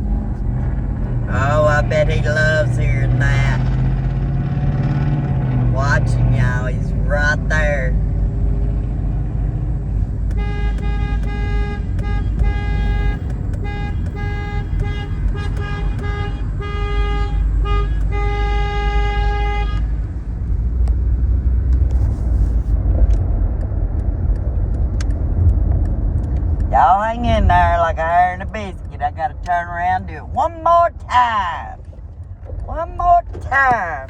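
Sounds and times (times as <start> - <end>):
car driving rumble: 0.0 - 34.0
vehicle horn honking: 10.3 - 20.0.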